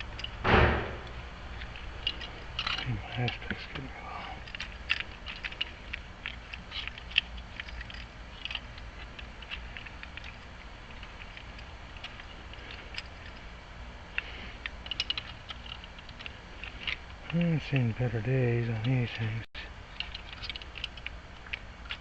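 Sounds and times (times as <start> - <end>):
lock hardware clicking: 0.0 - 13.5, 20.0 - 22.0
faint low hum: 0.0 - 22.0.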